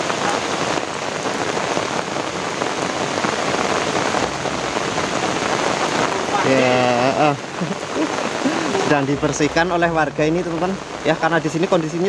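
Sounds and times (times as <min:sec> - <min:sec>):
rain falling on road and leaves: 0:00.0 - 0:12.0.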